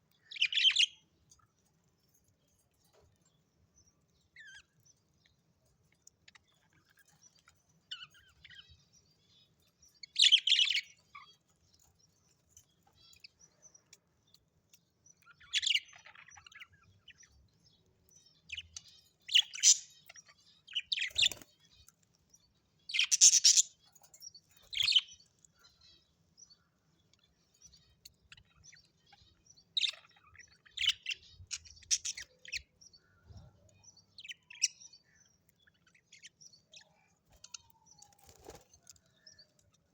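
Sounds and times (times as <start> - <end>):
parrot chirping: 22.9 - 23.8.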